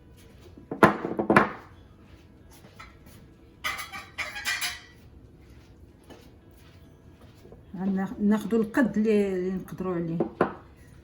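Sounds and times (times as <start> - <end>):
dishes knocking: 0.7 - 1.7, 10.2 - 10.6.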